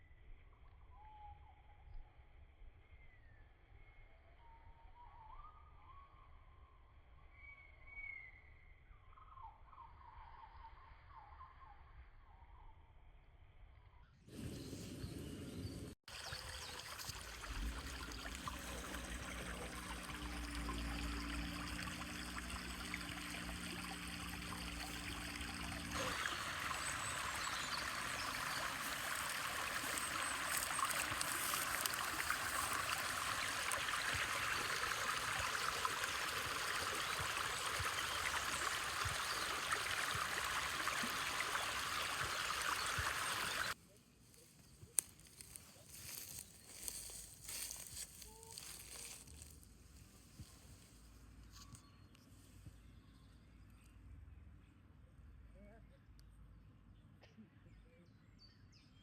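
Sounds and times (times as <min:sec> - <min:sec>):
stream trickling: 0:16.0 - 0:43.8.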